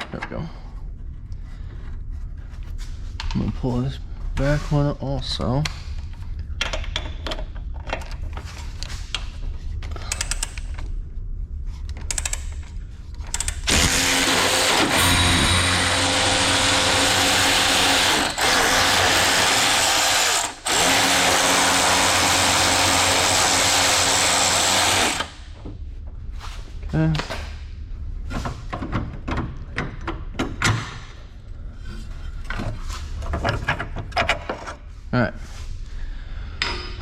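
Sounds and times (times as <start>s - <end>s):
tool handling clicks: 10.0s - 10.9s
handheld power tool running: 13.4s - 25.5s.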